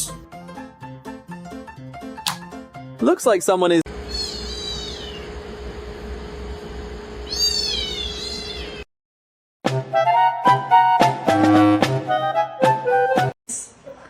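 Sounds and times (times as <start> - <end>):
steady background hum: 3.9 - 8.8
cat meowing: 4.1 - 5.3, 7.3 - 8.8.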